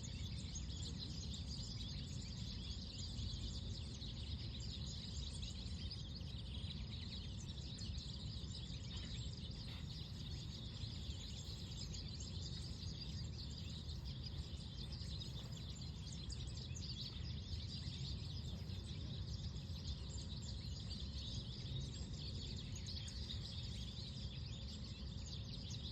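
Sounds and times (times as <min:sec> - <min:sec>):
small birds chirping: 0:00.0 - 0:25.9
low outdoor rumble: 0:08.0 - 0:23.6.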